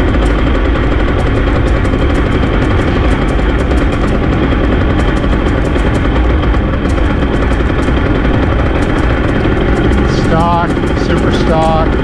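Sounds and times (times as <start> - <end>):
small motorbike engine running: 0.0 - 12.0.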